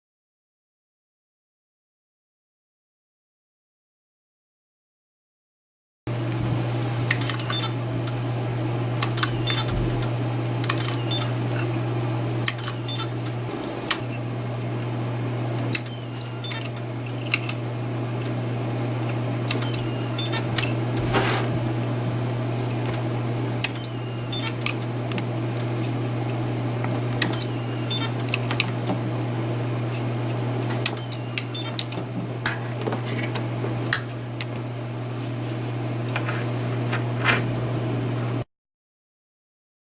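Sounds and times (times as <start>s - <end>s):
steady low hum: 6.1s - 38.4s
spot welder snapping clicks: 9.0s - 11.3s, 12.4s - 14.0s, 15.6s - 17.6s, 19.1s - 20.8s, 23.6s - 25.7s.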